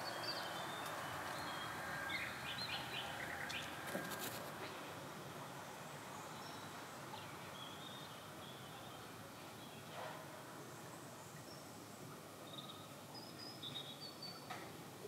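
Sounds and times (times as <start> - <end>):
small birds chirping: 0.0 - 4.4
steady background hiss: 0.0 - 15.0.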